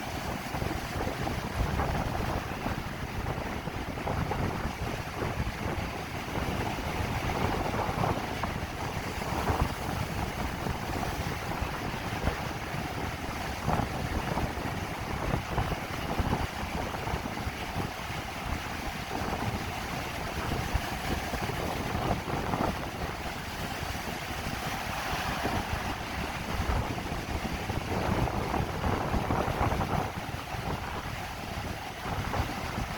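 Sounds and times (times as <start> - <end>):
waves rushing: 0.0 - 32.9
wind buffeting microphone: 0.0 - 32.9.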